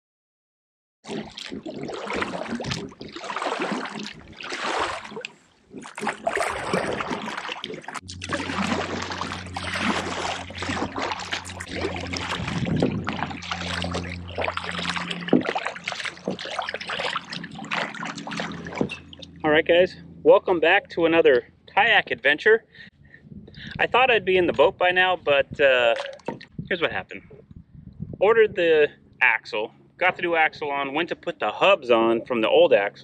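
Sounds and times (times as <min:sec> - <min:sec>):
water splashing around kayak: 0:01.0 - 0:19.6, 0:25.8 - 0:26.6
steady low hum: 0:01.6 - 0:33.0.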